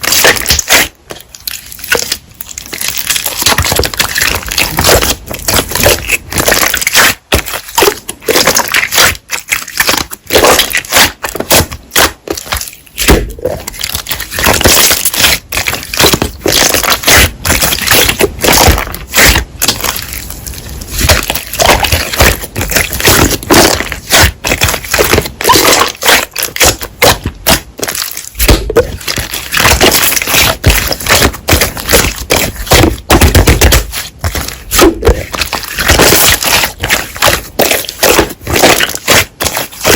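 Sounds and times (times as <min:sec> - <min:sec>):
slime squished by hand: 0:00.0 - 0:39.9.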